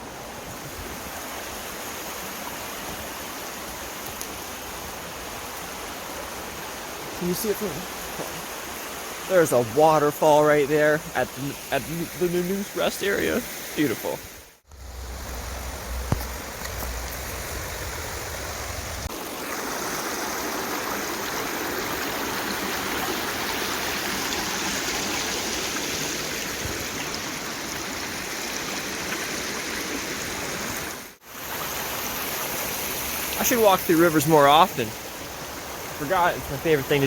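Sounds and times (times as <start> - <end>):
river water rushing: 0.0 - 37.0
low rumble: 14.7 - 19.1.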